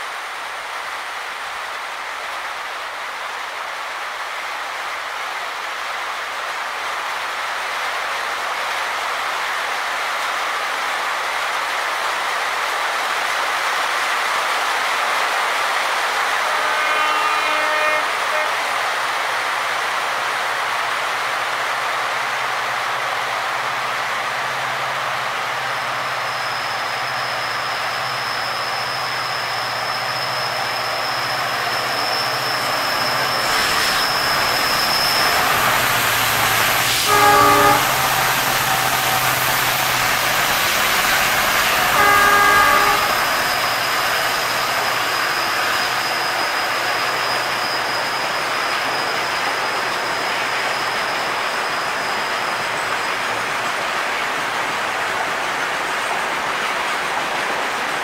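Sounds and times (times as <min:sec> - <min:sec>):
diesel locomotive engines running: 0:13.1 - 0:58.0
locomotive horn blasts: 0:16.4 - 0:18.7, 0:36.9 - 0:38.4, 0:41.4 - 0:43.7.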